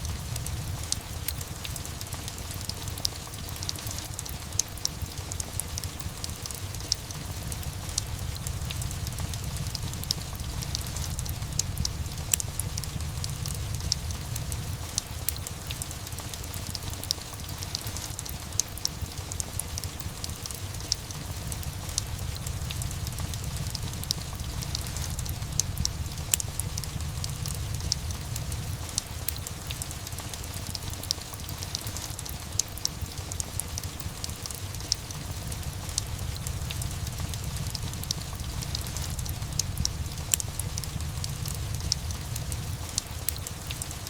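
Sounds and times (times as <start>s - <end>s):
fireplace crackling: 0.0s - 44.0s
steady rain: 0.0s - 44.0s.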